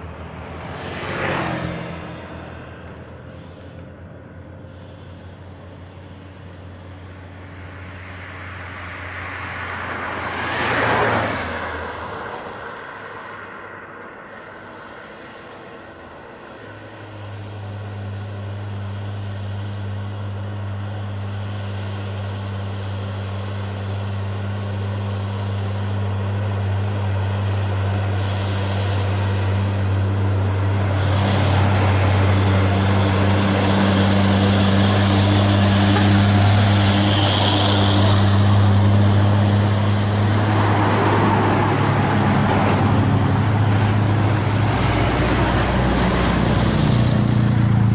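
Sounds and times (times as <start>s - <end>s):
diesel truck engine labouring: 17.1s - 47.9s
rush of noise: 24.7s - 47.9s.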